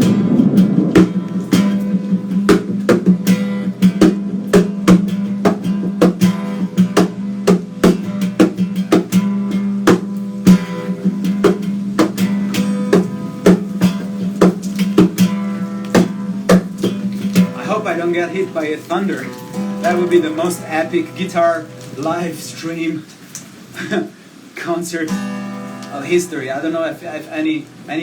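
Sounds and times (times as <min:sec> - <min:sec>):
acoustic guitar strumming: 0:00.0 - 0:23.0, 0:25.0 - 0:28.0.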